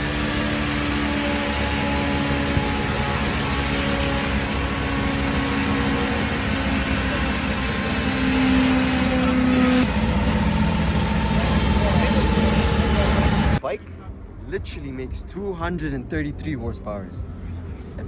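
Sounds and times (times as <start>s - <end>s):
car engine running: 0.0s - 13.6s.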